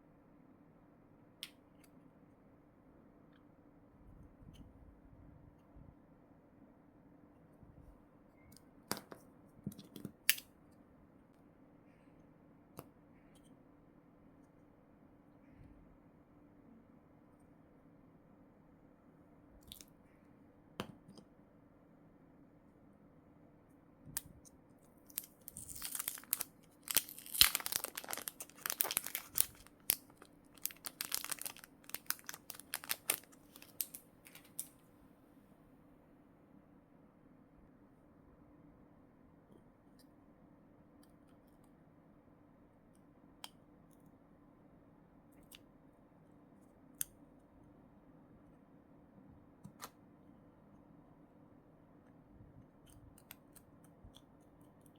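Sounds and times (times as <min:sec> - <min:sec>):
plastic packaging clicks: 0:25.1 - 0:34.8.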